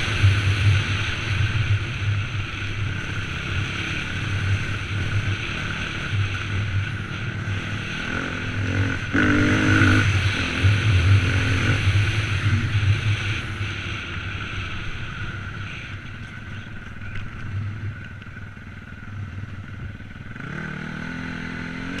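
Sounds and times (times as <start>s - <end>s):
dirt bike engine revving: 0.0s - 14.8s, 20.3s - 22.0s.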